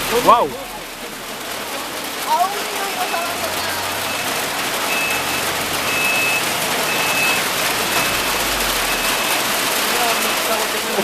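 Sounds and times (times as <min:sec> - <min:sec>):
low engine rumble: 0:00.0 - 0:10.0
rain and hail falling: 0:00.0 - 0:11.0
reversing beeper beeps: 0:04.0 - 0:09.5.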